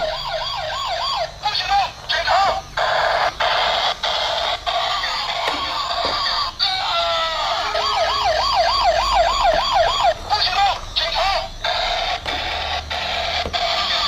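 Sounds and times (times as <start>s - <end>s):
tinny toy music: 0.0s - 14.0s
toy warbling siren: 0.0s - 14.0s
short steady electronic tones: 7.6s - 14.0s.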